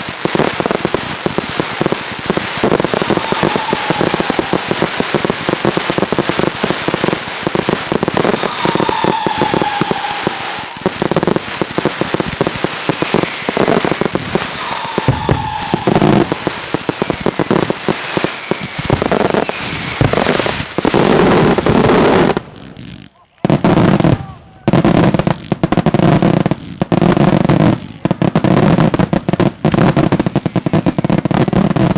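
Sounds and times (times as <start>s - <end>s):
fireworks crackling and bangs: 0.0s - 31.9s
firework whistles falling in pitch: 2.5s - 11.4s, 12.4s - 20.4s.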